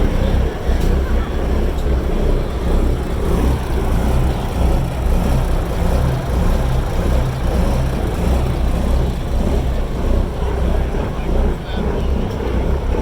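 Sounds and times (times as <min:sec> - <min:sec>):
diesel engines idling: 0:00.0 - 0:13.0.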